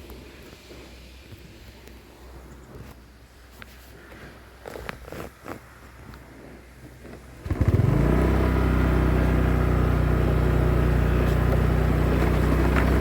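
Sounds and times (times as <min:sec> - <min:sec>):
engine starting and idling: 0:07.4 - 0:13.0.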